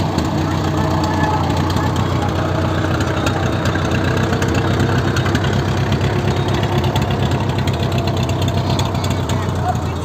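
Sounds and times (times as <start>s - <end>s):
car engine running at low revs: 0.0s - 10.0s.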